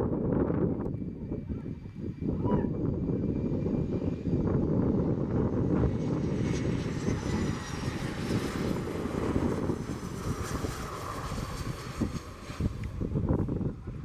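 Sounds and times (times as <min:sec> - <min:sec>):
jet engine rumble: 0:00.0 - 0:14.0.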